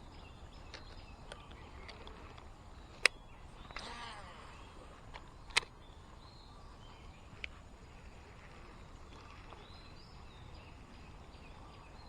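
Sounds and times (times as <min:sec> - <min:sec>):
faint bird chirps: 0:00.0 - 0:12.0
sharp click: 0:05.1 - 0:05.7.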